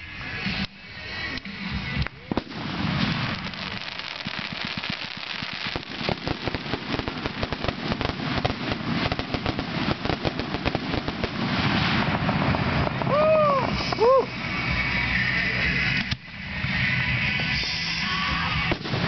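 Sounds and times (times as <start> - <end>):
fireworks popping and crackling: 0.0 - 19.0
heavy firework bangs: 2.3 - 14.2, 18.6 - 19.0.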